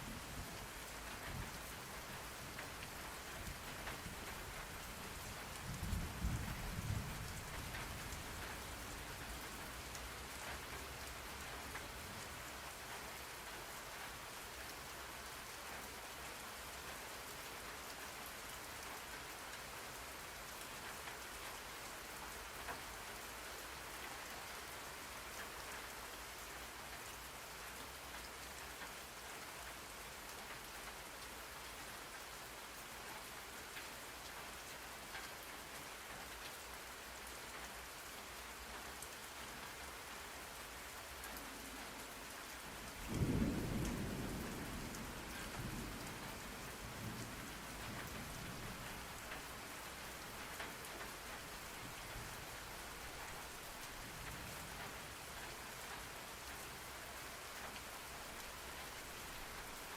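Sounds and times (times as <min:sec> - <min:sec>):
steady rain falling: 0:00.0 - 0:59.9
thunder rumble: 0:43.0 - 0:47.8.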